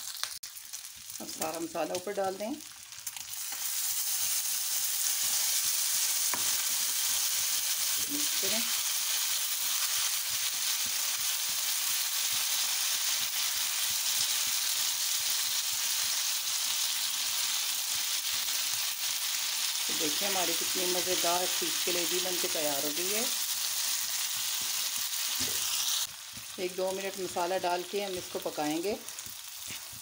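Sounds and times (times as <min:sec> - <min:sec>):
food sizzling in hot oil: 0:00.0 - 0:30.0
utensil stirring in pan: 0:02.6 - 0:16.2, 0:23.3 - 0:30.0.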